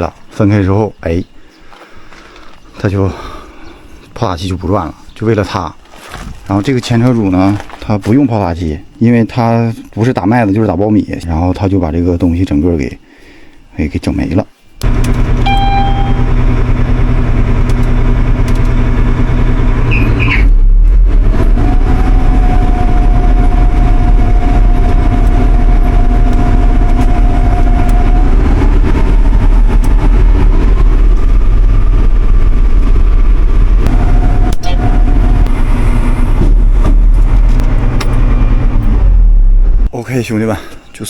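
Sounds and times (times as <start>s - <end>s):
combine harvester engine running: 14.8s - 39.9s.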